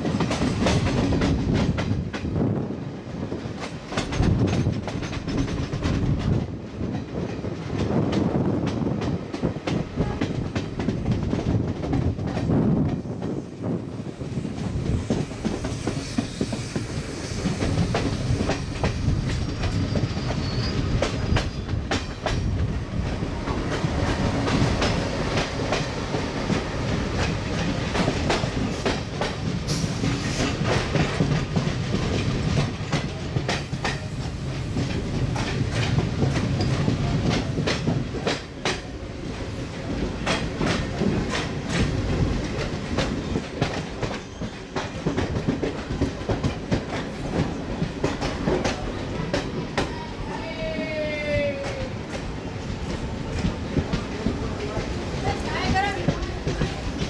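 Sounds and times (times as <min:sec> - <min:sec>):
train rumbling: 0:00.0 - 0:57.0
wheels clacking over rail joints: 0:03.4 - 0:13.4, 0:14.6 - 0:50.0.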